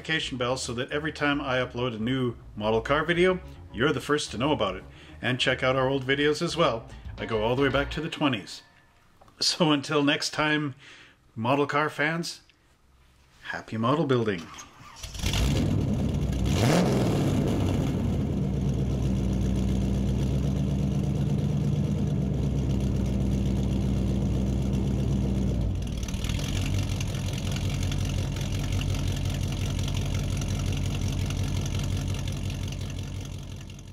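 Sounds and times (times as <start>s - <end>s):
car engine idling: 15.1s - 33.9s.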